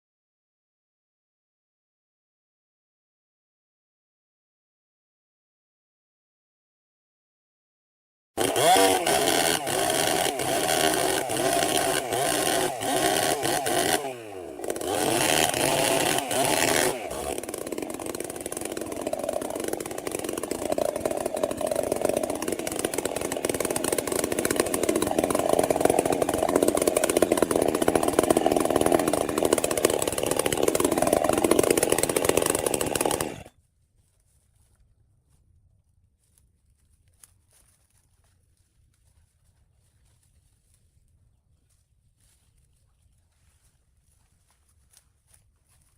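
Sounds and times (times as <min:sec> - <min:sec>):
chainsaw running at high revs: 0:08.4 - 0:33.5.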